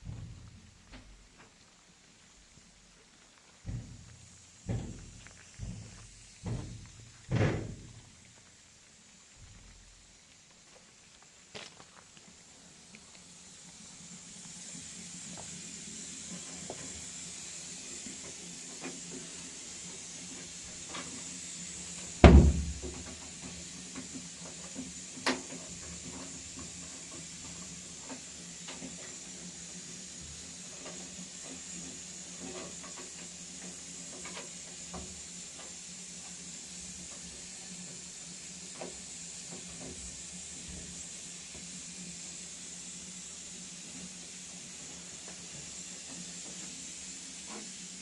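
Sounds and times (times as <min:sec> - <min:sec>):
heavy thump: 0:00.0 - 0:01.2, 0:03.7 - 0:08.1, 0:22.2 - 0:23.0
steady hiss: 0:00.0 - 0:48.0.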